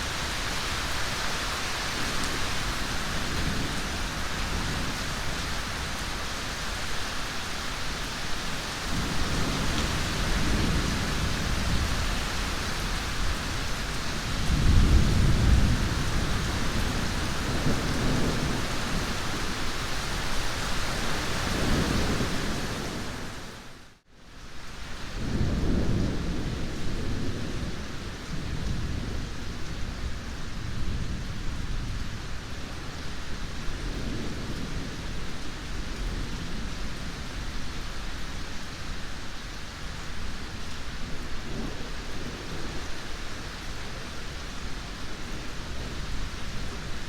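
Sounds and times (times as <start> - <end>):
heavy rain: 0.0 - 47.0
rolling thunder: 8.9 - 19.6.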